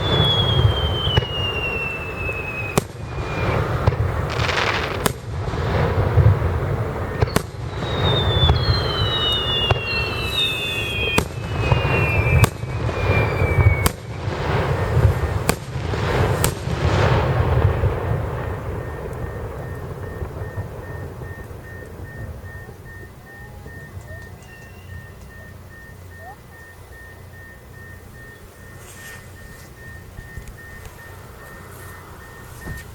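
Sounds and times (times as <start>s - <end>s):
descending firework whistles: 0.0s - 32.9s
firework bangs: 0.0s - 32.9s
low rumble: 11.0s - 32.9s.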